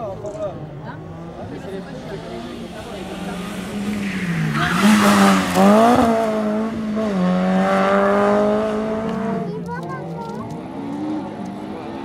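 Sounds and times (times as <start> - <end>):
rally car engine revving hard: 2.0 - 9.6.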